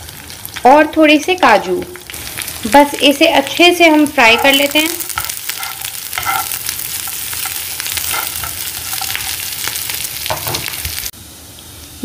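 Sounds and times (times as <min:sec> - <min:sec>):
food sizzling in oil: 0:00.0 - 0:12.0
steel spoon scraping a pan: 0:04.2 - 0:10.7.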